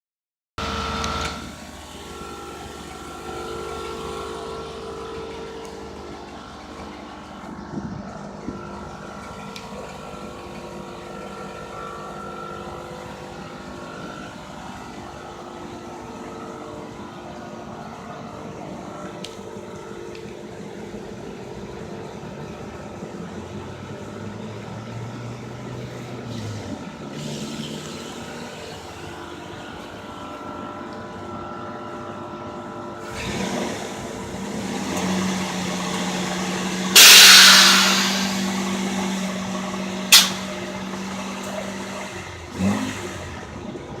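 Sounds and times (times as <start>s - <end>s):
steady mechanical hum: 0.6s - 44.0s
air hissing from suspension: 36.9s - 39.4s, 40.1s - 40.8s
short bursts of air: 37.0s - 39.1s, 40.1s - 40.6s.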